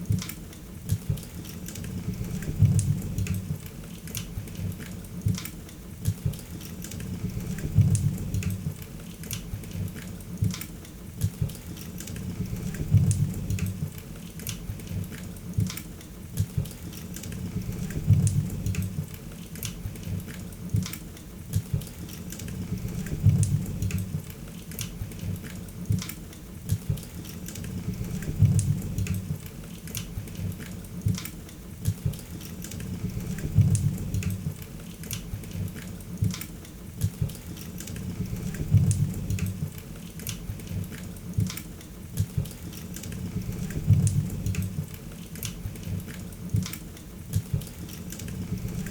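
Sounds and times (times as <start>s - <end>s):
low rumble of flames: 1.9s - 3.7s, 7.0s - 8.8s, 12.2s - 14.0s, 17.3s - 19.2s, 22.5s - 24.3s, 27.6s - 29.5s, 32.8s - 34.6s, 38.0s - 39.8s, 43.2s - 45.0s.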